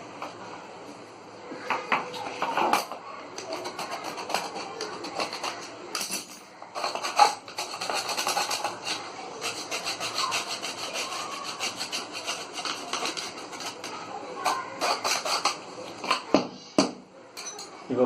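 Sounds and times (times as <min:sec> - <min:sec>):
hand rubbing and scraping: 0:02.0 - 0:16.4.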